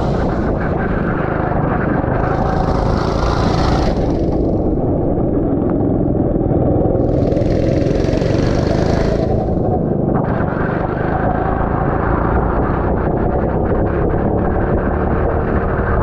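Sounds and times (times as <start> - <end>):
rapid crackling: 0.0 - 6.2, 6.8 - 11.8
go-kart engine and wind rumble: 0.0 - 16.0
hiss: 7.0 - 9.5.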